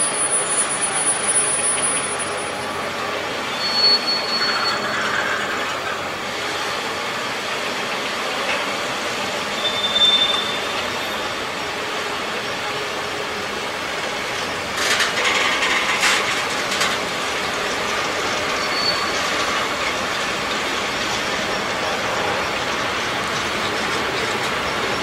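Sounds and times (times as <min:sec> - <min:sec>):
high wheel squeal: 0:00.0 - 0:07.3, 0:09.2 - 0:11.6, 0:14.4 - 0:25.0
freight train wheels on rail: 0:00.0 - 0:25.0
train clattering: 0:09.7 - 0:25.0.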